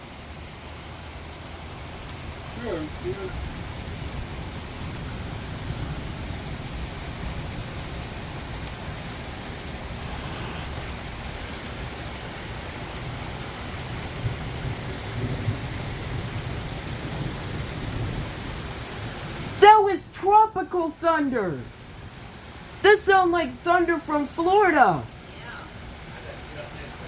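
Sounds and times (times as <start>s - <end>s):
heavy rain pouring: 0.0s - 27.0s
thunder rumbling: 2.4s - 19.6s.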